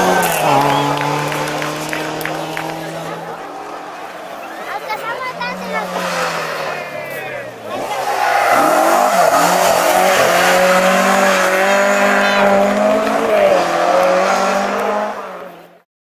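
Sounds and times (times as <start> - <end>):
rally car engine revving high: 0.0 - 15.8.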